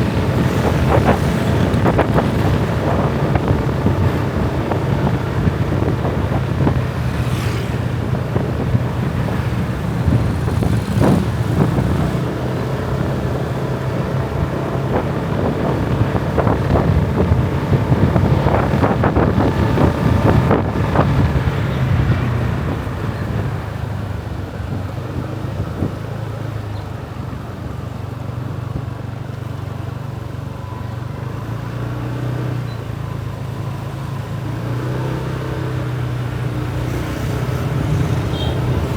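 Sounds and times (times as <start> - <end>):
wind buffeting microphone: 0.0 - 29.1
motorbike engine running: 0.0 - 29.2, 36.0 - 38.9
road traffic: 0.0 - 38.9.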